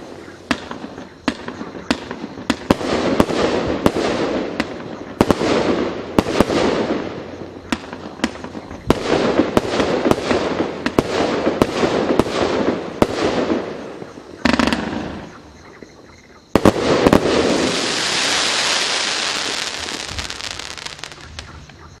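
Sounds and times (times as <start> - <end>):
firework shots launching and bursting: 0.0 - 15.3, 16.6 - 21.7
long hissing wash: 17.4 - 21.2.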